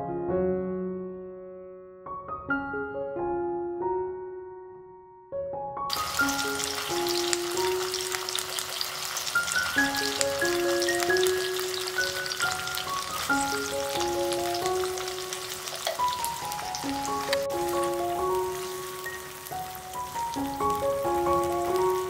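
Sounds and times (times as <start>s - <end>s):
hot oil sizzling and crackling: 5.9s - 22.0s
wooden spoon stirring: 13.6s - 16.4s.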